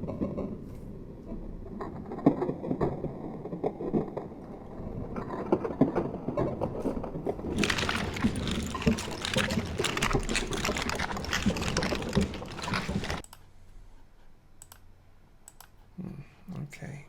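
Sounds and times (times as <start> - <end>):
dense crackling noise: 7.3 - 13.2.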